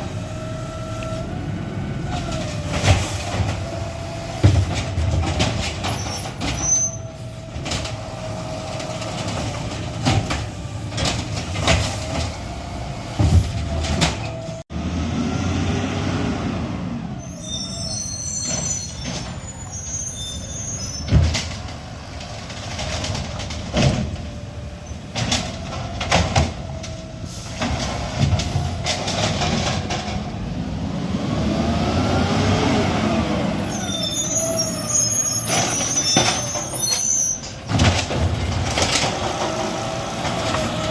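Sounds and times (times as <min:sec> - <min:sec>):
garbage truck engine revving: 0:21.2 - 0:36.7, 0:37.6 - 0:40.9.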